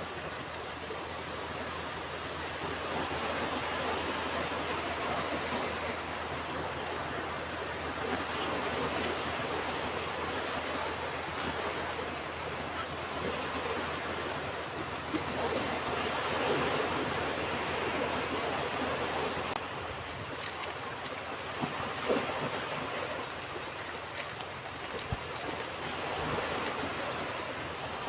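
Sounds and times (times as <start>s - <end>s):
ocean waves breaking on beach: 0.0s - 28.0s.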